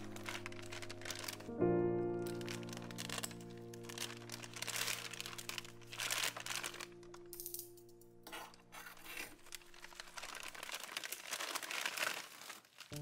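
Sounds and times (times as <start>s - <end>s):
plastic bag crinkling: 0.0s - 7.8s, 8.4s - 13.0s
soft background music: 0.0s - 12.0s
scissors cutting plastic: 2.3s - 7.3s, 8.3s - 13.0s.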